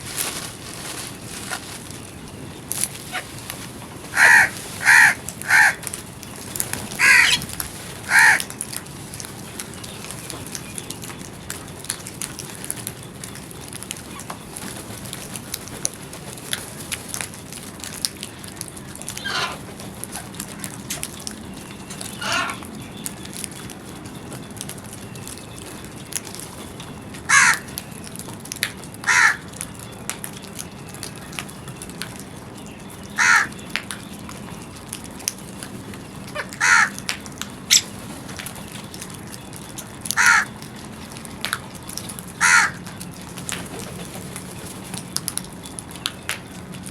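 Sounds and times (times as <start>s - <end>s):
crows cawing: 4.1s - 6.0s, 6.9s - 8.7s, 18.6s - 19.7s, 20.4s - 20.8s, 22.0s - 22.7s, 27.3s - 27.8s, 29.0s - 29.6s, 33.1s - 33.6s, 36.3s - 37.1s, 40.1s - 40.6s, 42.4s - 43.0s.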